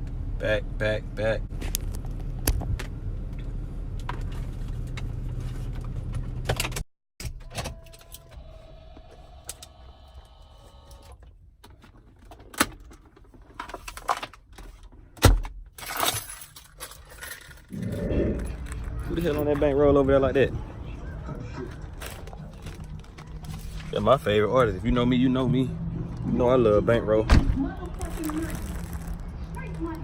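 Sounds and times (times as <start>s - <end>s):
vehicle engine hum: 0.0s - 6.8s, 17.7s - 30.0s.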